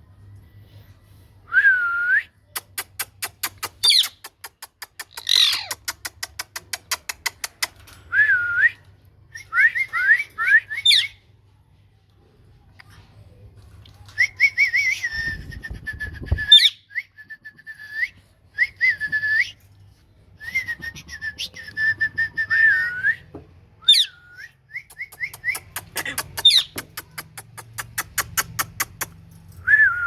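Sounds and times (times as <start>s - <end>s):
fast sharp clicks: 2.6s - 7.8s, 25.0s - 29.2s.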